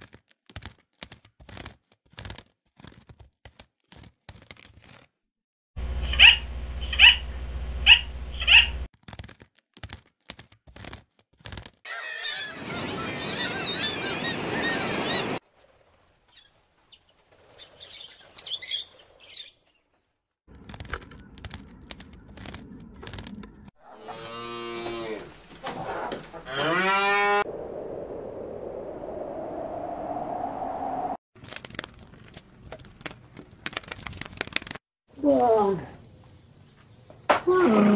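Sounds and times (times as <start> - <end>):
cattle mooing: 23.8 - 27.4.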